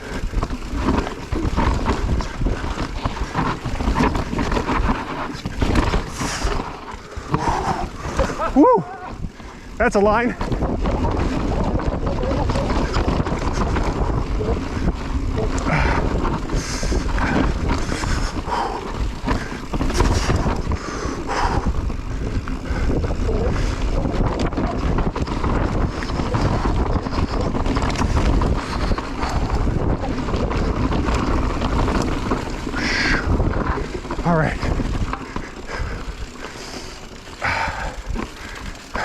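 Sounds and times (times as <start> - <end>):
steady rushing noise: 0.0 - 39.0
wind buffeting microphone: 0.0 - 39.0.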